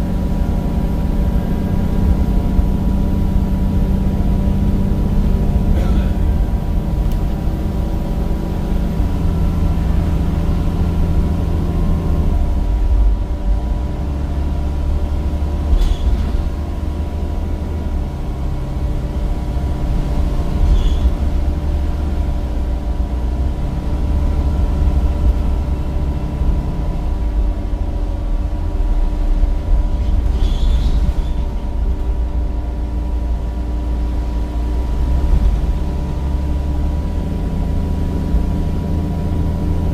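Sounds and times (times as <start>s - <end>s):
bus diesel engine: 0.0s - 39.9s
steady whine: 0.0s - 39.9s
brief squeaks: 15.7s - 16.4s, 20.6s - 21.2s, 29.9s - 31.5s.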